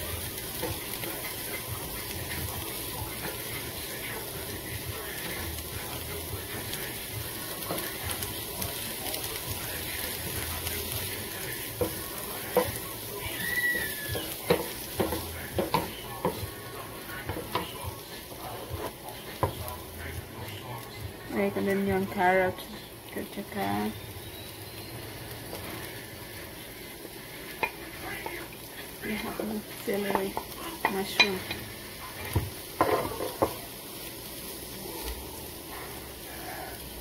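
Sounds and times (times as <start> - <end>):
rice and onion sizzling in butter: 0.0 - 37.0
spatula knocking and scraping pan: 7.5 - 8.3, 11.7 - 12.8, 13.8 - 16.6, 17.2 - 17.9, 18.6 - 19.7, 30.0 - 33.6.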